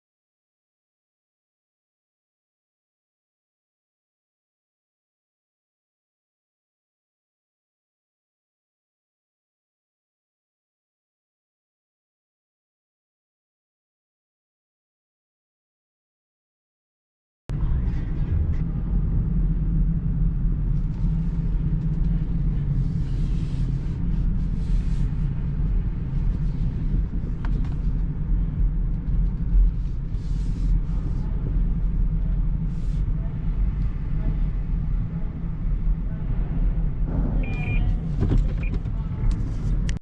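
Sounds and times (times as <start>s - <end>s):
moving vehicle rumble: 17.5s - 40.0s.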